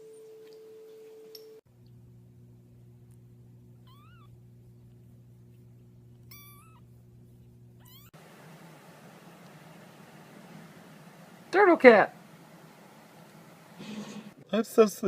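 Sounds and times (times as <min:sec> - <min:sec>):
steady low hum: 0:01.4 - 0:14.5
cat meowing: 0:03.8 - 0:04.3, 0:06.3 - 0:06.9, 0:07.8 - 0:08.2.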